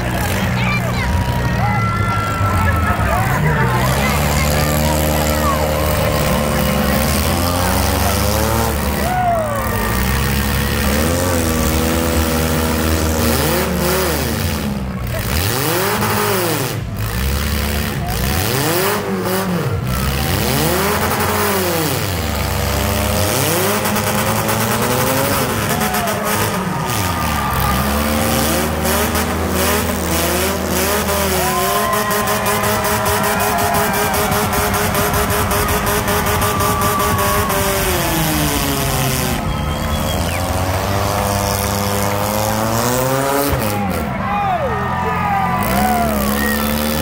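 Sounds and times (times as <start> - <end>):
car engines revving: 0.0 - 47.0
low engine drone: 19.5 - 46.9.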